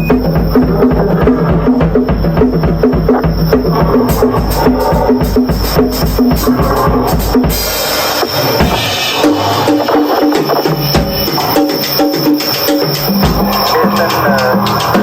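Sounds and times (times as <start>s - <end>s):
deep kick drum: 0.0s - 7.7s
drum kit solo: 0.0s - 15.0s.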